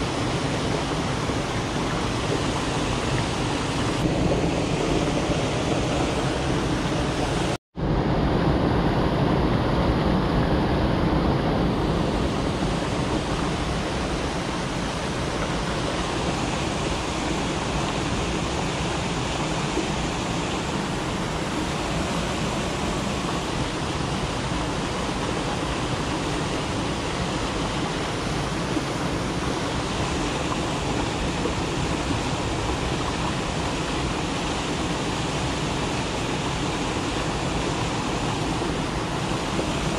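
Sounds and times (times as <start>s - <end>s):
stream rushing over rapids: 0.0s - 39.9s.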